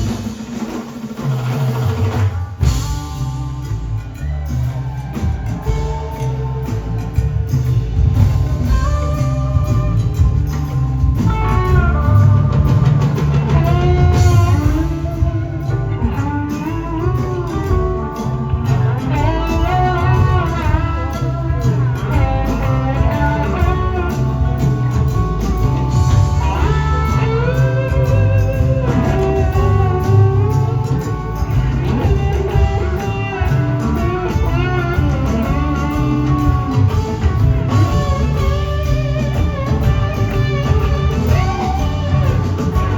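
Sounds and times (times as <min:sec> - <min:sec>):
bass: 0:00.0 - 0:42.9
drums: 0:00.0 - 0:42.9
electric guitar bending notes: 0:02.6 - 0:42.9.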